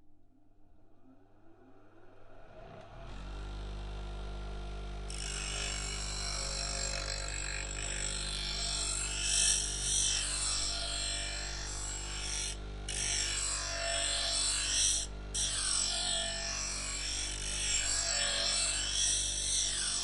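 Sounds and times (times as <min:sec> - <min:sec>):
grinding machine motor humming: 0:02.8 - 0:20.0
metal scraper grinding: 0:05.1 - 0:20.0.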